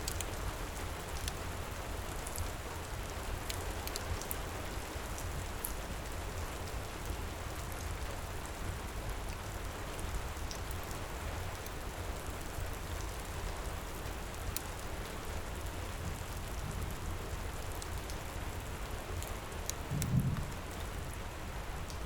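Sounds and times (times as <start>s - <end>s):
wood fire crackling: 0.0s - 6.4s, 8.7s - 22.0s
heavy rain: 0.0s - 22.0s
deep rumble: 19.9s - 21.2s.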